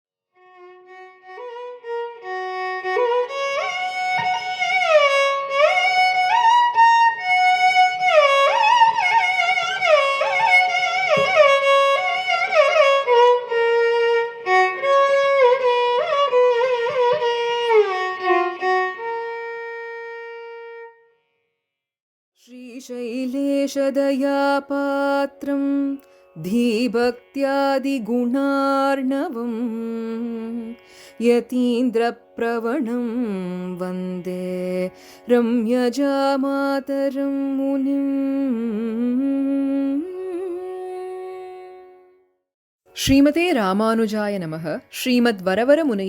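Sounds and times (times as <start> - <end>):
solo violin melody: 0.4 - 21.4, 22.4 - 42.3.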